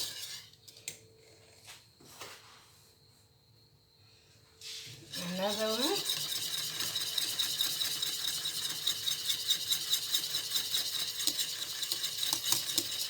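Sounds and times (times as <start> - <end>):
spoon scraping pot while stirring: 0.0 - 0.6, 4.6 - 13.0.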